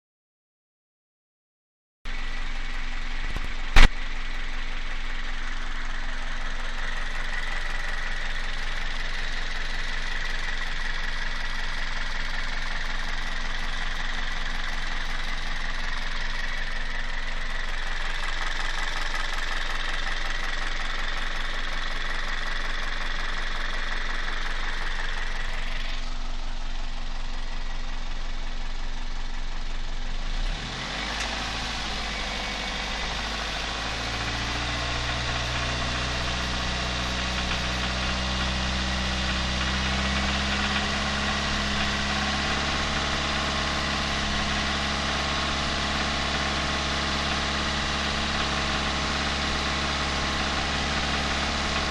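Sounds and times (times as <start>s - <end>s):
car engine idling with knock: 2.1s - 51.9s
sharp click: 3.3s - 4.0s.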